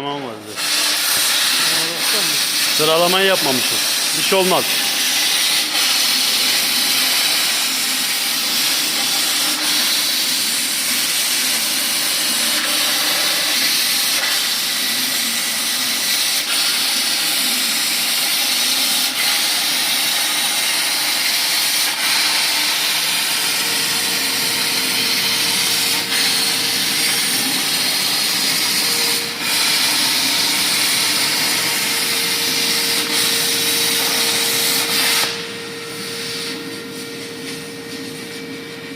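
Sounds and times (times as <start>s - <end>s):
plasma arc hissing: 0.4s - 38.3s
steady whine: 21.9s - 38.9s.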